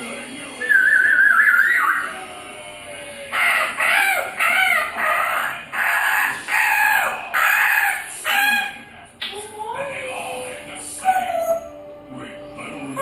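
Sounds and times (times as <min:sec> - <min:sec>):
parrot squawking: 0:00.6 - 0:02.3, 0:03.3 - 0:08.9, 0:11.0 - 0:11.8.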